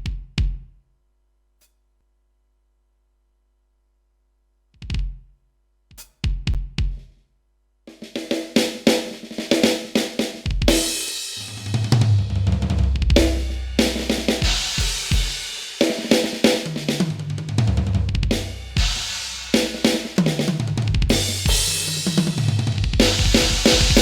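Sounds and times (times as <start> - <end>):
drum kit groove: 5.9 - 7.2, 7.9 - 24.0.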